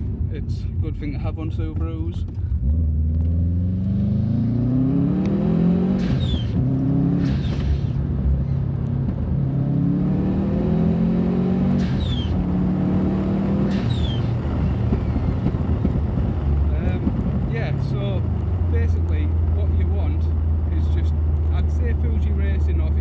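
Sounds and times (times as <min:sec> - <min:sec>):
car engine accelerating through gears: 0:01.6 - 0:23.0.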